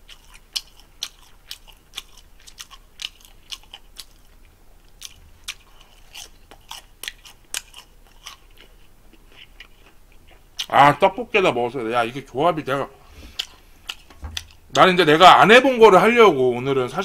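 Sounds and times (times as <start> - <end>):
biting and chewing crunchy food: 0.0 - 11.0, 13.2 - 14.9.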